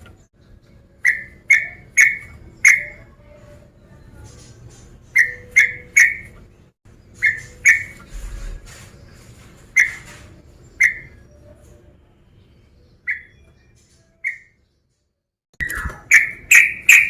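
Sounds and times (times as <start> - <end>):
bird call notes: 15.6 - 17.0.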